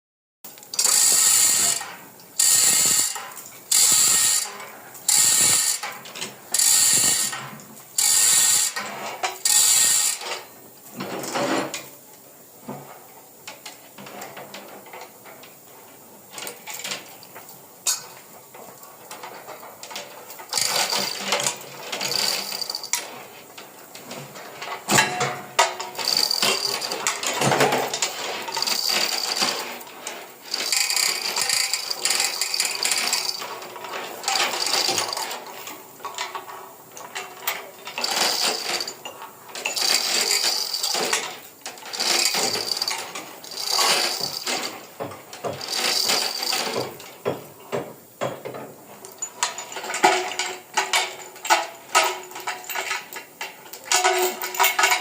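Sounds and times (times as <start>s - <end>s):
mechanical ratcheting and clicking: 0.7s - 5.9s, 6.5s - 7.4s, 8.0s - 10.4s, 20.4s - 23.1s, 25.0s - 29.6s, 30.5s - 35.4s, 37.4s - 44.7s, 45.6s - 46.9s.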